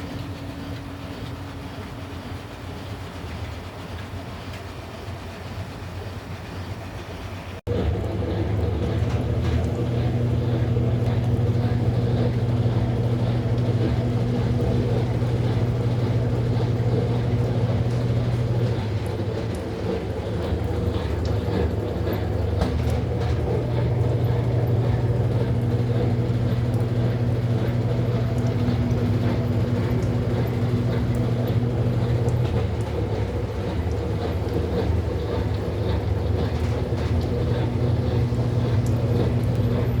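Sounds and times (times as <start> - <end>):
washing machine spinning: 0.0 - 40.0.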